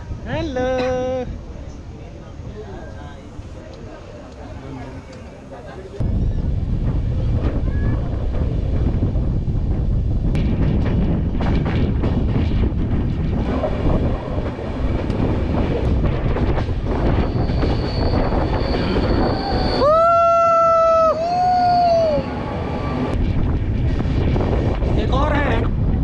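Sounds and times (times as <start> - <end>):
train rumbling and rattling: 0.0 - 26.0
thin high squeal: 17.2 - 19.8.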